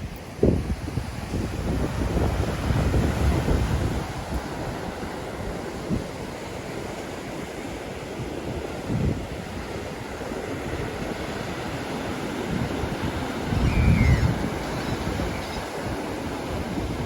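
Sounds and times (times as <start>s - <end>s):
waves washing on shore: 0.0s - 17.0s
wind buffeting microphone: 0.0s - 17.0s.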